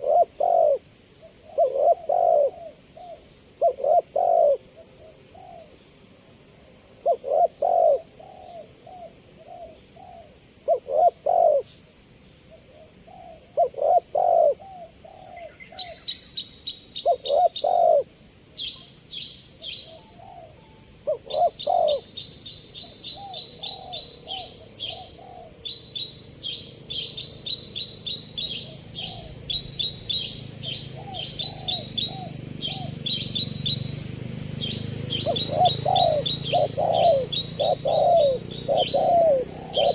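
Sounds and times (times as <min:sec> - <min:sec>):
dove cooing: 0:00.0 - 0:05.8, 0:07.0 - 0:11.8, 0:12.6 - 0:16.0, 0:17.0 - 0:18.1, 0:19.9 - 0:39.9
small bird chirping high notes: 0:25.8 - 0:39.9.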